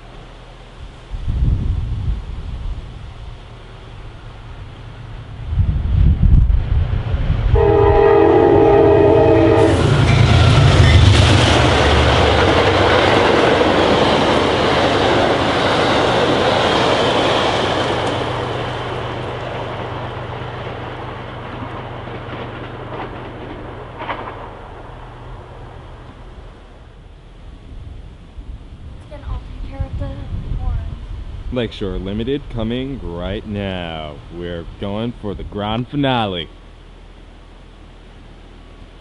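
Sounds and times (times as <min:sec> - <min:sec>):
train rushing past on rails: 0:00.0 - 0:39.0
wind buffeting microphone: 0:00.8 - 0:33.5
train horn blast: 0:07.5 - 0:11.1.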